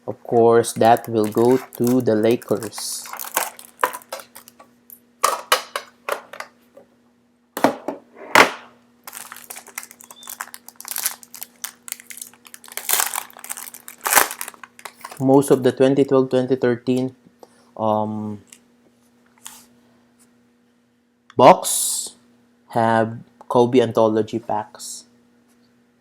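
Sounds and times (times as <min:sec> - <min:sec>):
faint steady hum: 0:00.0 - 0:26.0
card wrappers crinkling: 0:00.7 - 0:05.5, 0:09.0 - 0:15.3.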